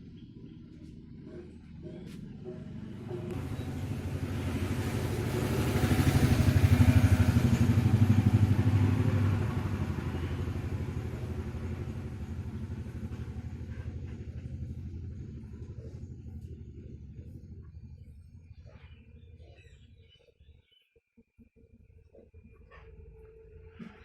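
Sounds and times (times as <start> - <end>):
vehicle engine passing by: 1.8 - 17.9.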